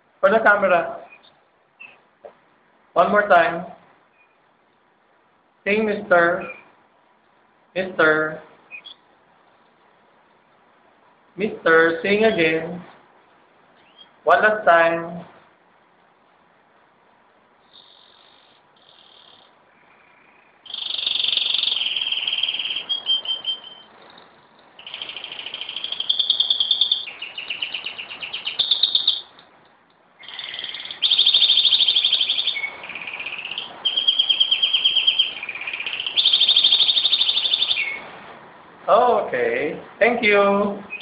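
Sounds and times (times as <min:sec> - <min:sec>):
canary trilling song: 0:01.0 - 0:02.0, 0:04.1 - 0:04.6, 0:06.2 - 0:06.8, 0:08.0 - 0:10.4, 0:13.7 - 0:14.3, 0:17.6 - 0:29.6, 0:30.2 - 0:38.0
canary chirps: 0:01.0 - 0:02.1, 0:04.0 - 0:04.9, 0:06.2 - 0:11.2, 0:12.1 - 0:14.3, 0:17.0 - 0:38.1.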